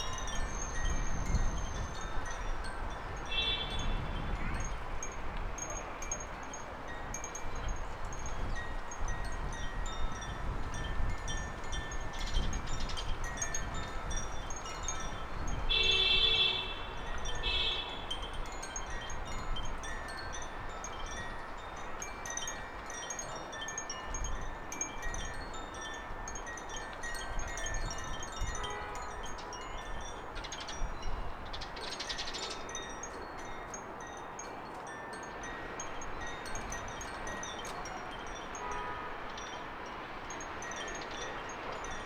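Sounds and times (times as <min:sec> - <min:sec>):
songbirds chirping: 0:11.1 - 0:42.0.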